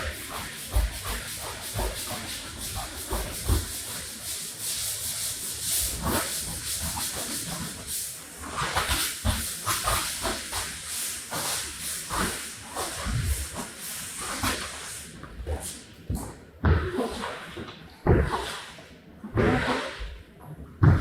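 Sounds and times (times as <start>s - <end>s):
scrubbing strokes on rug: 0.0s - 15.9s.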